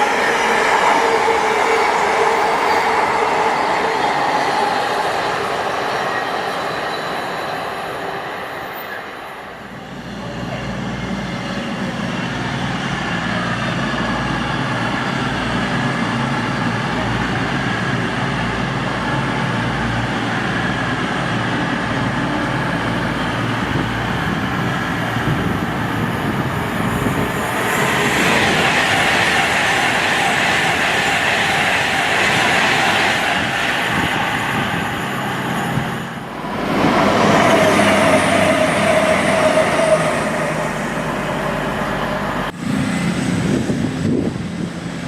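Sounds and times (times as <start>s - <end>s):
train running past: 0.0s - 45.0s
rushing sound: 25.9s - 45.0s.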